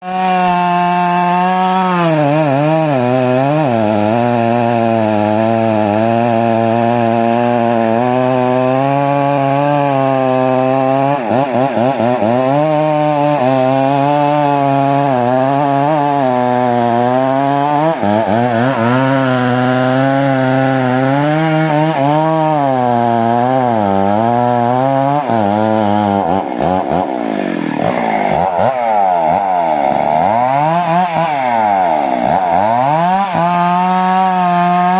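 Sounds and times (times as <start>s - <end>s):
chainsaw cutting tree trunk: 0.0s - 34.9s.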